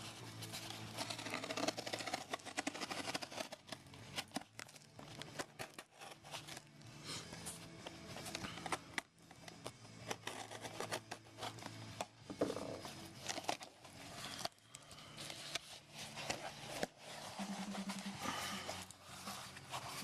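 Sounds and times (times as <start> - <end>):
box opening clicks and scrapes: 0.4 - 6.6, 7.4 - 14.6.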